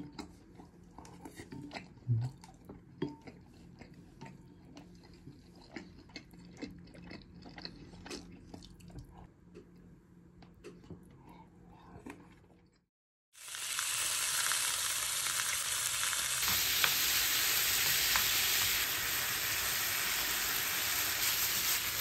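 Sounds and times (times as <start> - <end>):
person chewing soft food: 0.0 - 12.9.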